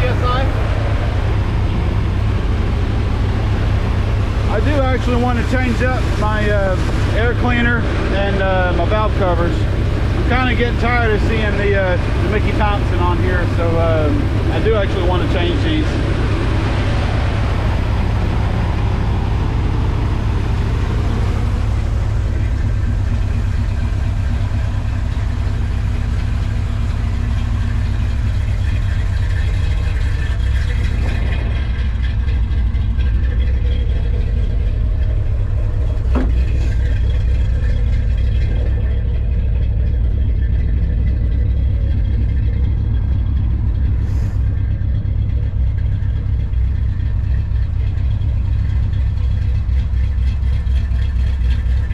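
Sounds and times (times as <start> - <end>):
truck engine idling: 0.0 - 51.9.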